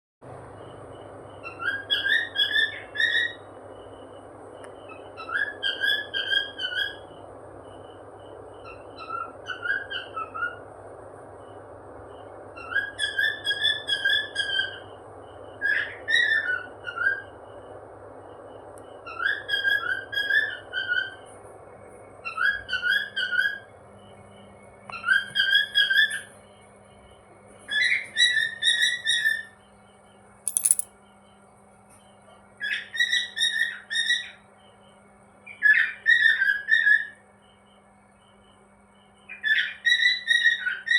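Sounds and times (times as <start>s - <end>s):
steady background noise: 30.4s - 31.0s.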